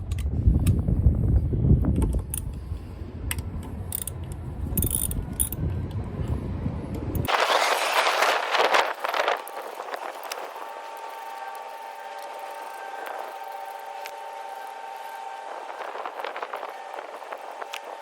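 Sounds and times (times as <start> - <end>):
metallic clicks and rattles: 3.3 - 5.6.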